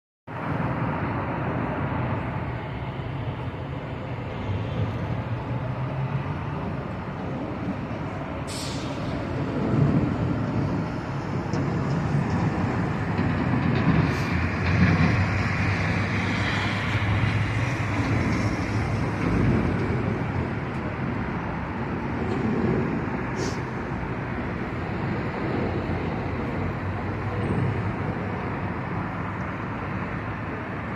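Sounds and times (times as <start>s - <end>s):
passing motor traffic rumble: 0.3s - 30.9s
brief sharp hiss: 8.4s - 9.2s, 23.3s - 23.8s.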